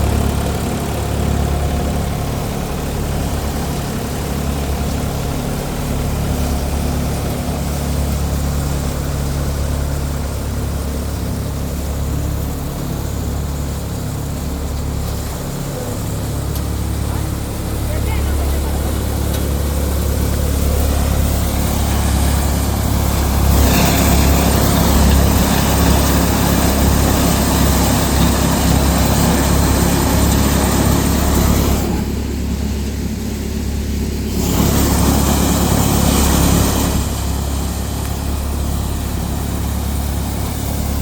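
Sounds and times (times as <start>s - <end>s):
tractor diesel engine running: 0.0s - 41.0s
loud rushing noise: 18.8s - 32.7s.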